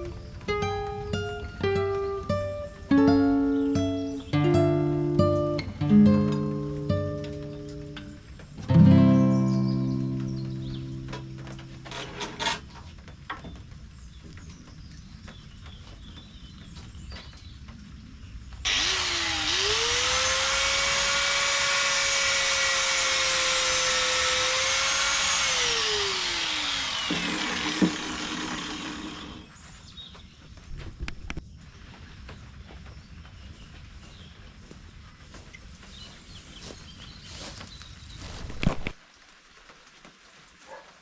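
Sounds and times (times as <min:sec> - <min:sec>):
power tool motor whining: 0:03.4 - 0:12.8, 0:18.7 - 0:29.5
clicks and knocks: 0:11.0 - 0:12.8.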